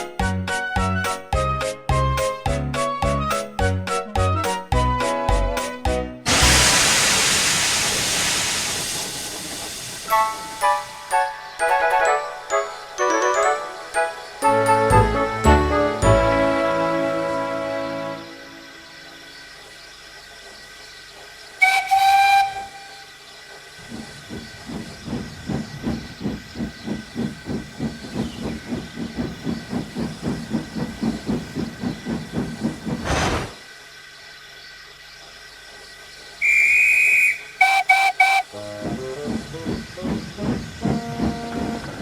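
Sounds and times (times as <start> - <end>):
steam locomotive whistle: 6.3 - 11.9, 21.6 - 23.2, 36.4 - 38.8, 40.8 - 42.0
steam locomotive chuffing: 6.3 - 12.7, 13.9 - 35.0, 35.6 - 42.0
whistle toots: 21.6 - 23.2, 36.4 - 38.6.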